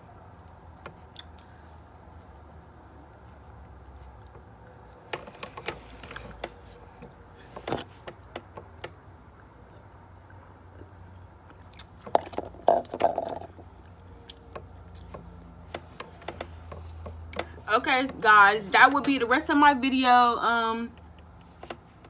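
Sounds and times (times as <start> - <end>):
wet chewing mouth sounds: 9.0 - 12.4.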